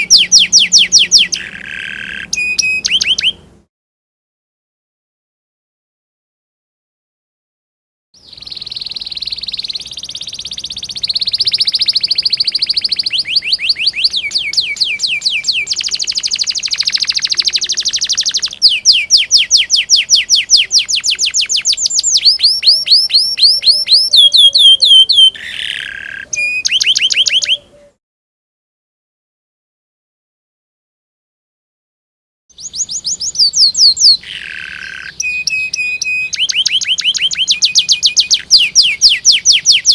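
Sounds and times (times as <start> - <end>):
canary singing: 0.0 - 3.6, 8.2 - 28.0, 32.5 - 39.9.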